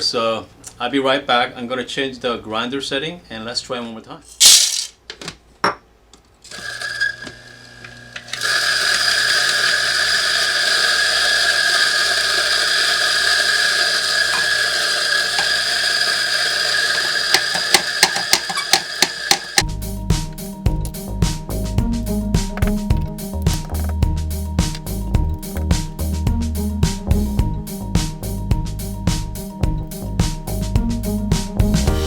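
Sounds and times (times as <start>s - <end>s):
electric coffee grinder running: 6.5s - 19.7s.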